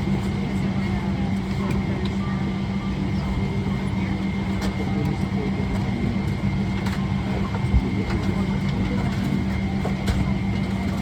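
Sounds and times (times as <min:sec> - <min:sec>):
airliner cabin drone: 0:00.0 - 0:11.0.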